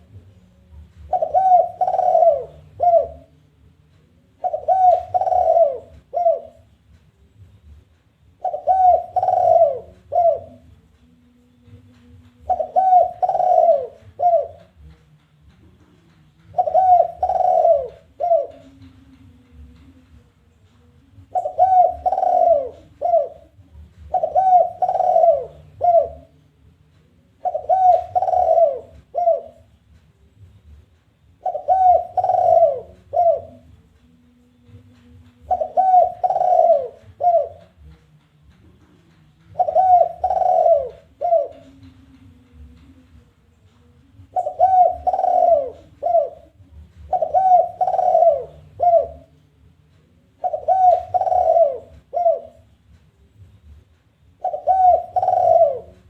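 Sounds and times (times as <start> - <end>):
dove cooing: 0.0 - 3.4, 4.2 - 6.7, 8.4 - 10.7, 12.3 - 14.9, 16.0 - 20.0, 21.1 - 26.4, 27.3 - 29.7, 31.4 - 33.8, 34.6 - 38.0, 39.4 - 43.1, 44.1 - 49.4, 50.2 - 52.8, 54.4 - 56.0.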